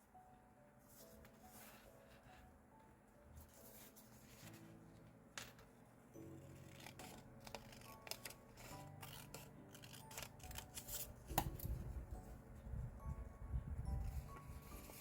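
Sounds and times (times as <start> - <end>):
soft piano music: 0.0 - 15.0
scissors snipping paper: 6.6 - 11.7.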